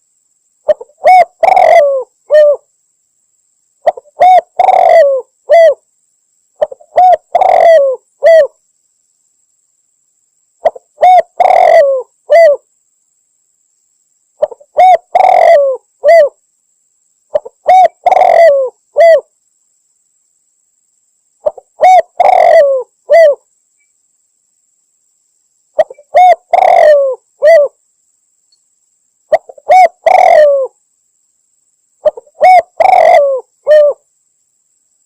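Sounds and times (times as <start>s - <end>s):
dove cooing: 0.7s - 2.6s, 3.8s - 5.8s, 6.6s - 8.6s, 10.6s - 12.7s, 14.4s - 16.4s, 17.3s - 19.3s, 21.4s - 23.4s, 25.8s - 27.8s, 29.3s - 30.8s, 32.0s - 34.0s.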